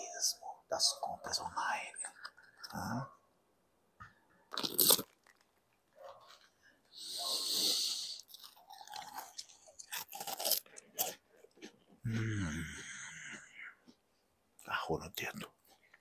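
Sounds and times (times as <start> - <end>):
person crunching snack: 4.5 - 6.6, 7.3 - 14.0.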